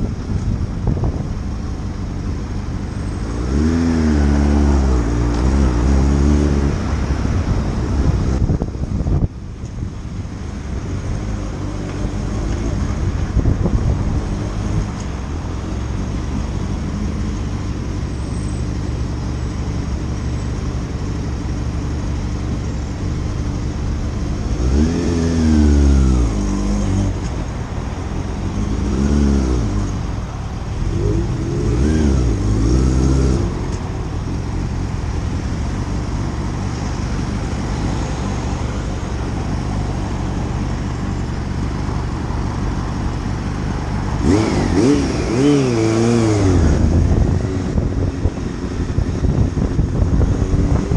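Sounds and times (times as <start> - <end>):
road and wind noise: 0.0 - 50.9
motorcycle engine revving: 3.1 - 9.2, 23.4 - 27.5, 28.2 - 30.0, 30.7 - 50.9.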